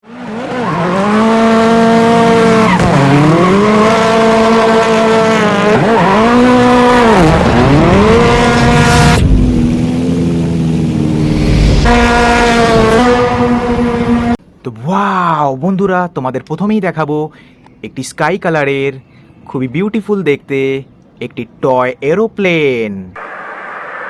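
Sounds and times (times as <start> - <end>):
racing car engine: 0.0 - 14.4.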